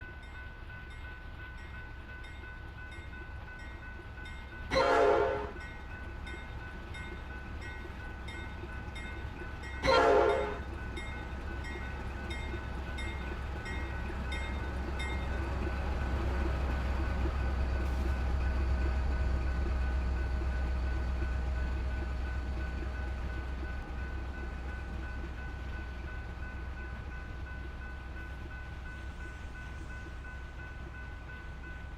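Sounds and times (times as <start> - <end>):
low train engine rumble: 0.0 - 31.9
locomotive horn blasts: 4.7 - 5.6, 9.8 - 10.7.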